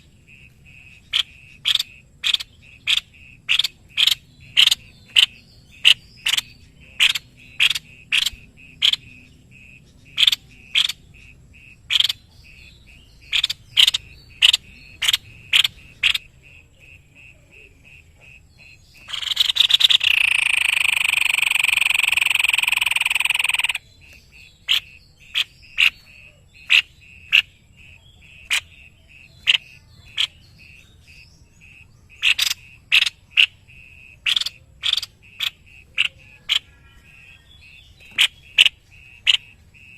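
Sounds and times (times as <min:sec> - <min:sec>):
bird calling sharp high notes: 0:19.0 - 0:23.9
harsh buzzing bird call: 0:19.0 - 0:23.9.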